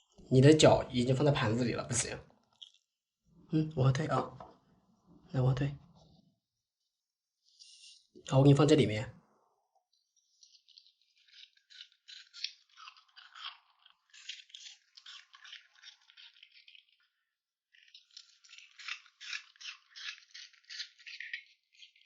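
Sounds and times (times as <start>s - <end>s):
dog crunching and licking food: 2.5s - 2.8s, 10.1s - 22.0s.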